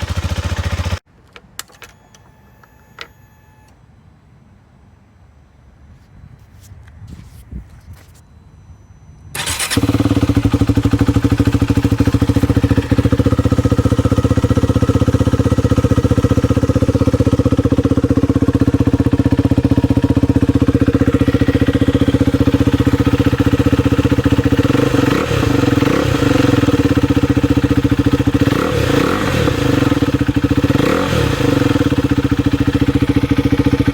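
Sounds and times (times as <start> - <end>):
motorcycle engine starting and idling: 0.0 - 3.7, 9.3 - 33.9
motorcycle throttle blips: 9.4 - 33.9.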